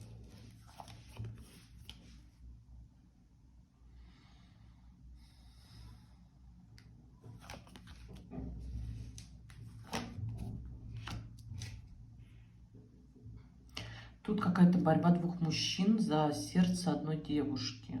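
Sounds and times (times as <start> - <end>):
cards rustling: 0.0 - 2.3, 7.2 - 11.9.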